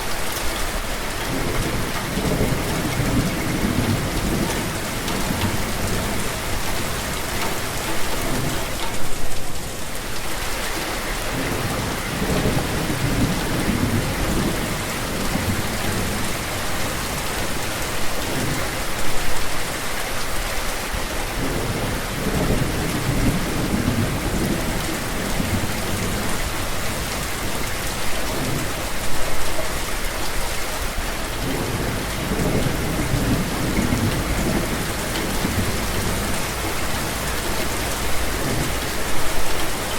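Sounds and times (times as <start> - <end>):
steady rain falling: 0.0 - 39.9
rolling thunder: 21.4 - 27.7.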